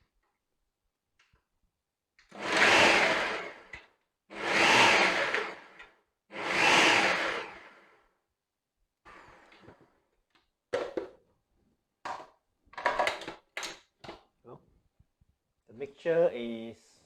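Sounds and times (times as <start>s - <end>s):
electric blender running: 2.3s - 7.9s.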